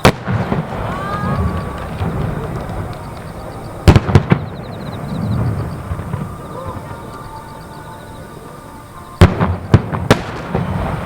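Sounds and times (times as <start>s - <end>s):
fireworks bursting with bangs: 0.0s - 11.0s.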